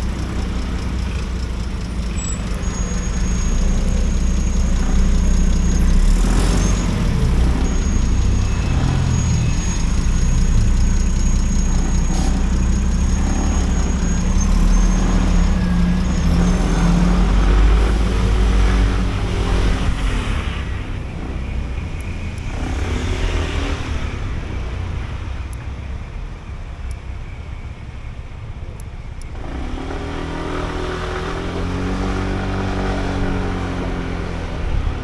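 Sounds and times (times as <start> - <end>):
scooter engine accelerating: 0.0 - 25.6, 29.2 - 35.0.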